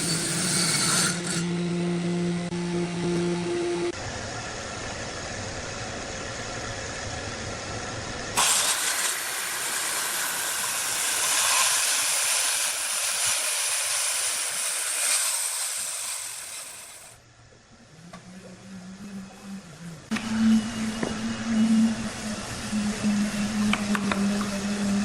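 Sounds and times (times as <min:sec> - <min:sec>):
machine hum: 0:01.1 - 0:13.2, 0:16.5 - 0:25.0
loud steady hiss: 0:05.6 - 0:17.2.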